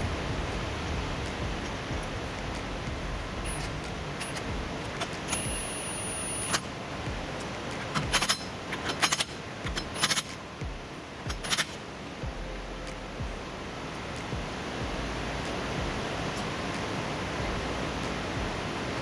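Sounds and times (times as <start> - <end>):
steady background hiss: 0.0 - 19.0
metal tools clinking: 7.4 - 10.4, 11.2 - 11.8.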